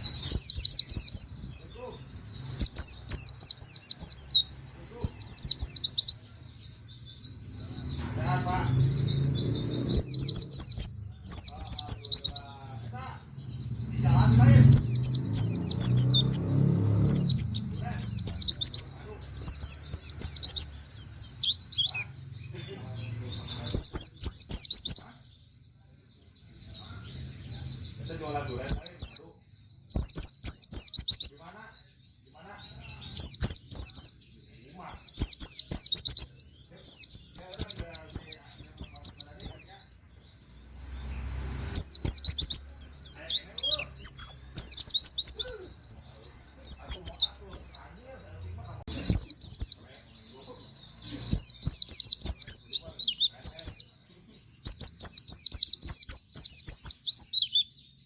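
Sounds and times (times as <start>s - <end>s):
bird singing high chirps: 0.0s - 58.0s.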